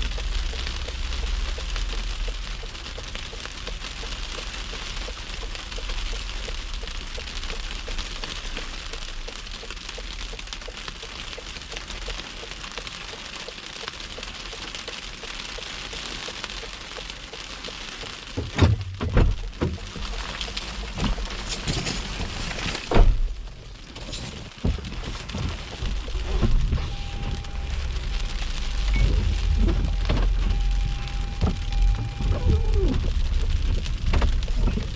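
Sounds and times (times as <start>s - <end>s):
loud knocks and thumps: 18.4s - 20.1s
car driving through snow: 24.5s - 34.9s.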